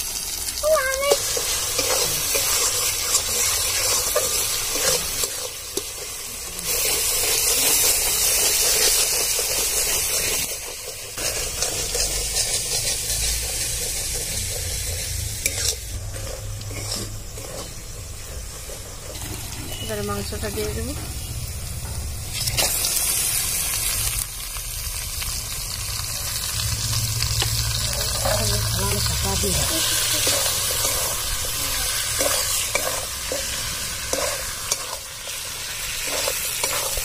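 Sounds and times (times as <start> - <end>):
masala sizzling in oil: 0.0 - 37.0
metal spatula scraping pan: 1.2 - 20.4, 29.4 - 37.0.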